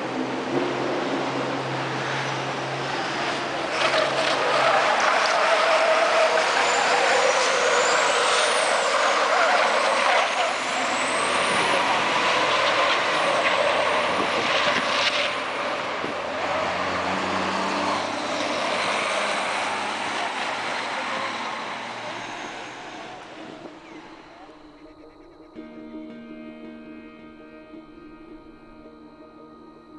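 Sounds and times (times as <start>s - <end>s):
truck diesel engines: 0.0s - 29.9s
high whistles: 5.7s - 14.3s, 22.0s - 26.2s.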